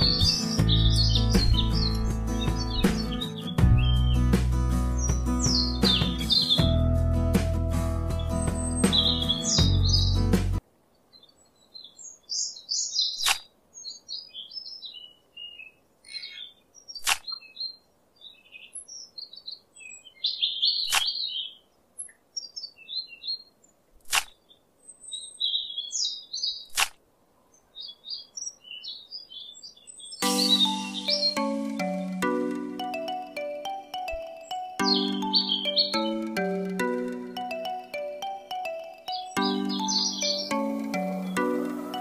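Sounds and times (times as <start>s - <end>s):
small birds chirping: 0.0s - 6.8s, 8.1s - 42.0s
sharp clicks: 17.0s - 17.3s, 24.0s - 24.4s, 26.7s - 27.0s.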